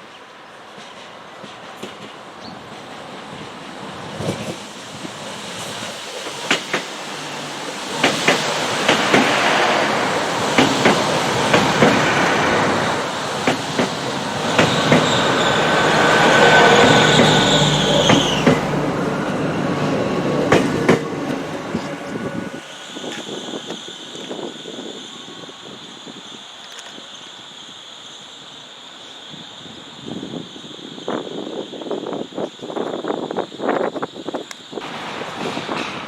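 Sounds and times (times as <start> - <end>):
train wheels clicking over rail joints: 4.1 - 19.1, 20.3 - 21.9
high wheel squeal: 7.3 - 19.3, 21.4 - 34.4.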